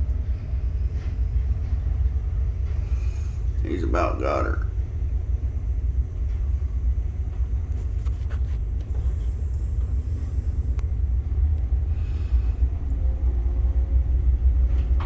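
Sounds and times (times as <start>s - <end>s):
wind buffeting microphone: 5.3s - 15.0s.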